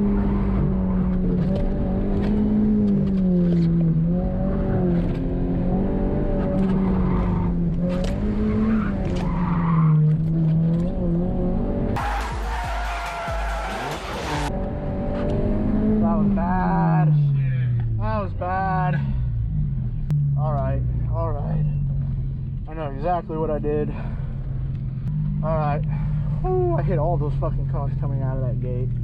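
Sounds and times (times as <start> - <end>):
car engine revving: 0.0 - 29.0
tire squeal: 6.6 - 10.5, 12.0 - 14.5.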